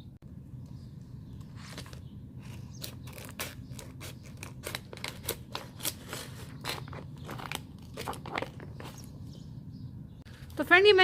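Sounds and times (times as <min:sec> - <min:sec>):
scissors cutting plastic sheet: 0:02.7 - 0:08.6.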